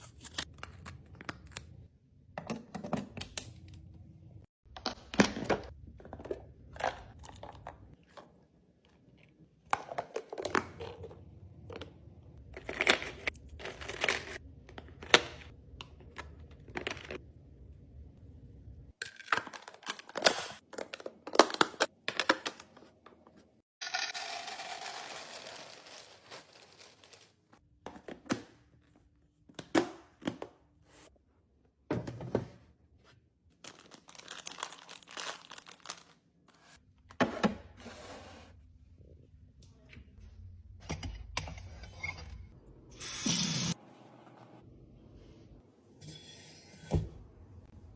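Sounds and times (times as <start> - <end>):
packaging crinkling: 23.9 - 27.5, 33.6 - 36.2.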